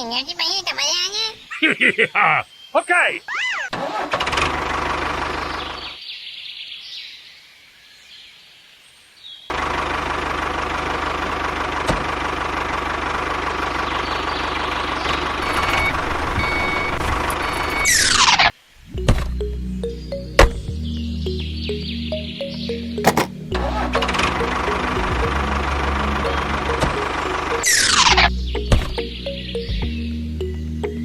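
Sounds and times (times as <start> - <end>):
engine-like running sound: 9.5 - 15.5, 23.0 - 28.5.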